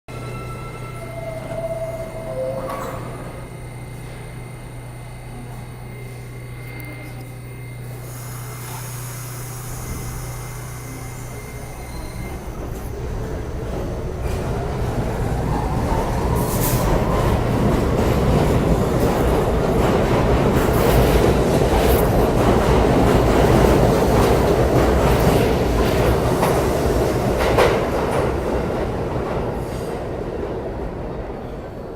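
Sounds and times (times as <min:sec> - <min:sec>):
subway train wheels rumbling: 0:00.1 - 0:31.9.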